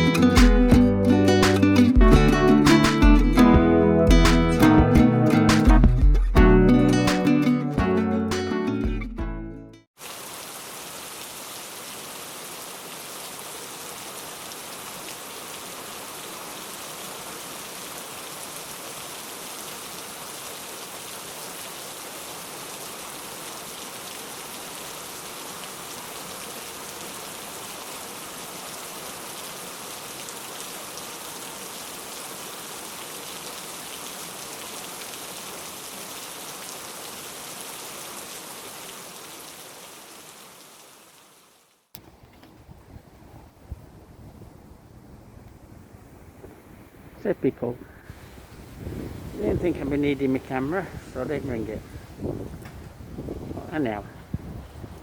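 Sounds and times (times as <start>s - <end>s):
heavy rain falling: 10.0s - 41.6s.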